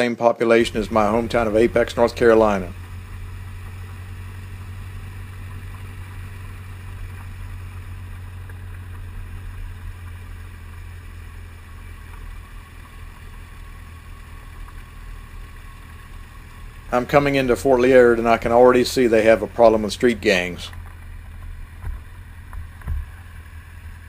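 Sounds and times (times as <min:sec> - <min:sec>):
motorcycle engine humming: 0:00.4 - 0:24.0.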